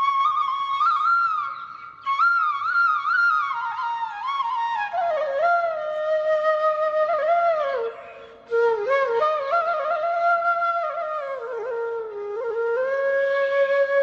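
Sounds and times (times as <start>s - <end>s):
solo flute melody: 0.0s - 14.0s.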